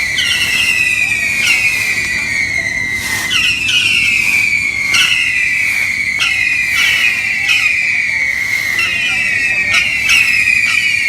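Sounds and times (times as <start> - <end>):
whistling fireworks: 0.0 - 11.0.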